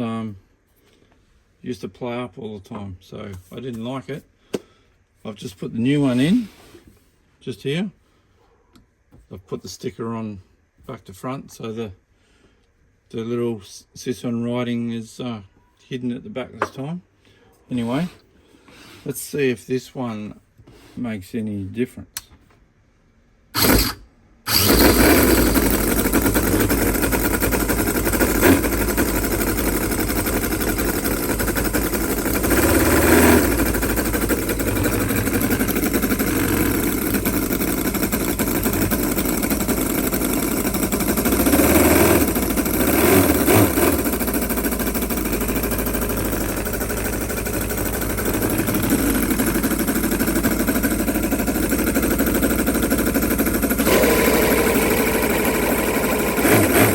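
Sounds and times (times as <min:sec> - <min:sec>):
model engine running and revving: 0:23.6 - 0:56.9
starter motor cranking: 0:23.6 - 0:56.9.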